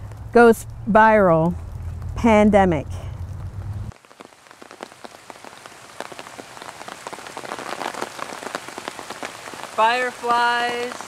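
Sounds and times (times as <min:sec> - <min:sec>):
low steady rumble: 0:00.0 - 0:03.9
rain drops ticking: 0:00.0 - 0:11.0.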